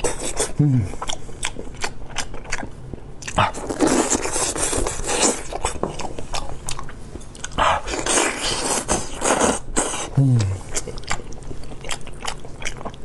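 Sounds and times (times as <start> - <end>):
wet chewing and biting: 0.0 - 10.0, 10.7 - 13.0
person humming: 0.6 - 0.9, 10.2 - 10.7.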